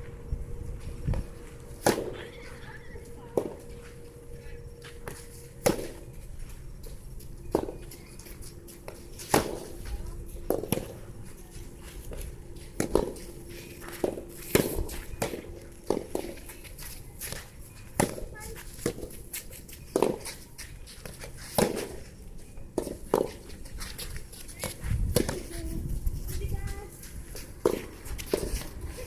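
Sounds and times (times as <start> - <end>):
wind rumbling on microphone: 0.0 - 1.5, 24.8 - 27.3
tennis balls struck by rackets: 1.1 - 2.4, 5.0 - 6.1, 7.5 - 7.9, 8.7 - 11.1, 12.1 - 16.5, 17.2 - 19.2, 19.9 - 20.4, 21.0 - 22.1, 22.7 - 23.6, 24.6 - 25.5, 27.3 - 28.8.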